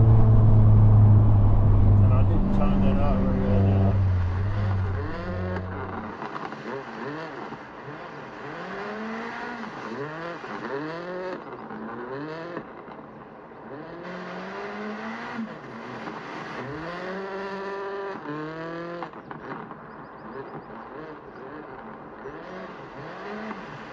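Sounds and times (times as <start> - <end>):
car engine revving: 0.0 - 11.3.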